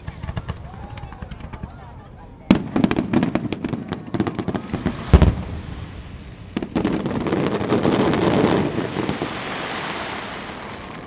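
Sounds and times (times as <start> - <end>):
crackle of small firework bursts: 0.0 - 11.0
firework cracks: 0.0 - 11.0
firework boom: 2.5 - 10.9.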